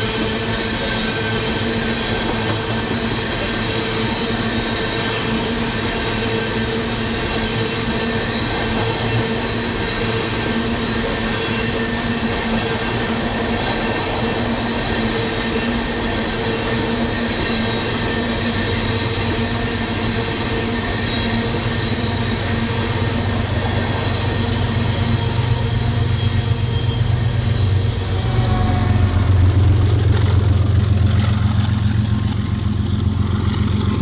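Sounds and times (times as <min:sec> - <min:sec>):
freight cars rumbling on rails: 0:00.0 - 0:34.0
high wheel squeal: 0:00.0 - 0:34.0
deep engine rumble: 0:18.4 - 0:34.0.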